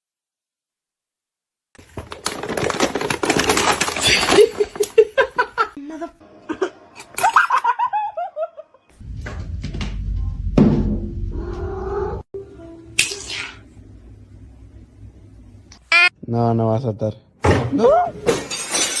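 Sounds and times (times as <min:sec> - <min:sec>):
rustling and clattering: 0:01.8 - 0:05.0
person laughing: 0:04.2 - 0:08.9.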